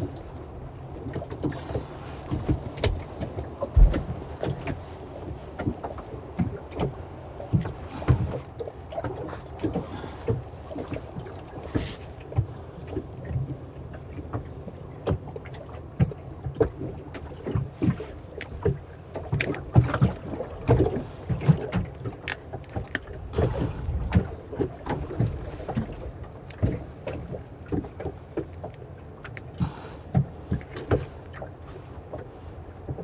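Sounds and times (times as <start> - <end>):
water splashes: 0.0 - 33.0
knocks against boat: 2.3 - 4.8.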